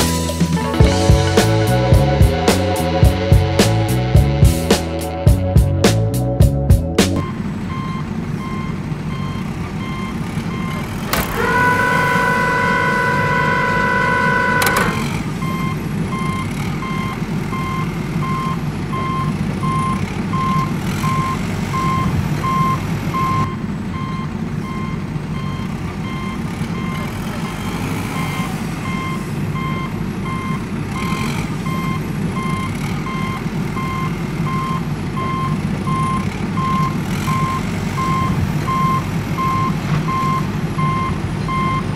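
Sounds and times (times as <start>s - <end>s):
truck reversing alarm beeping: 7.2s - 41.9s
truck horn held: 11.1s - 15.2s.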